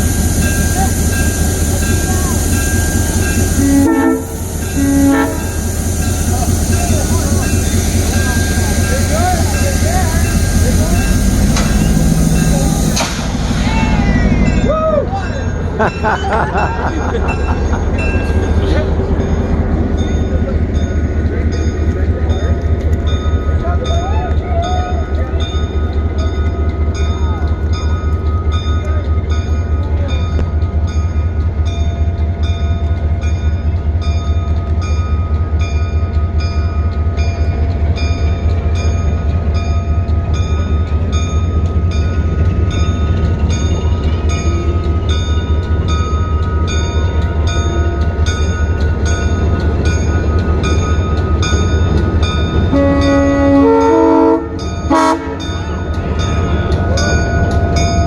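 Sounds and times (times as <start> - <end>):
diesel locomotive engine rumbling: 0.0 - 58.0
locomotive bell ringing: 0.0 - 58.0
train air horn chord: 3.6 - 5.6, 52.7 - 55.6.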